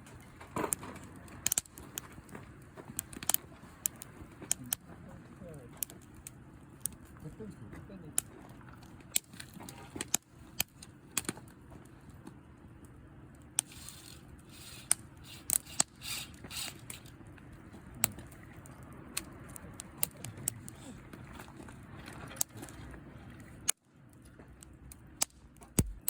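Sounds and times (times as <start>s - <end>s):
campfire crackling and popping: 0.0s - 26.0s
campfire hissing: 10.0s - 21.2s.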